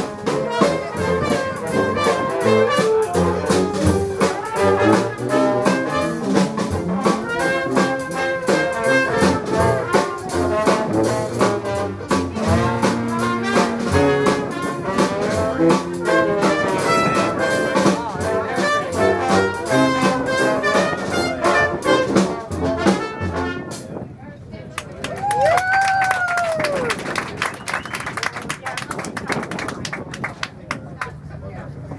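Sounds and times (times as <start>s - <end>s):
drums beat: 0.0s - 23.2s
jazz band playing: 0.0s - 24.1s
trombone: 0.0s - 24.1s
trumpet: 0.0s - 24.1s.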